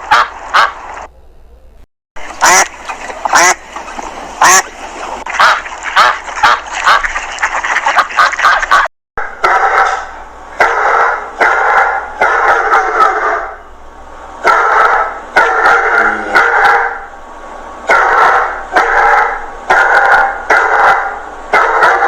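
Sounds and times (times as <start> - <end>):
dog barking: 9.2 - 13.6, 14.4 - 17.1, 17.9 - 22.0.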